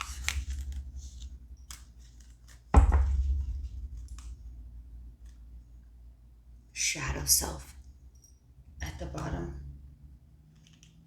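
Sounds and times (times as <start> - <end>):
cards clicking and rustling: 0.0 - 2.7
cards thumping on table: 2.8 - 4.3.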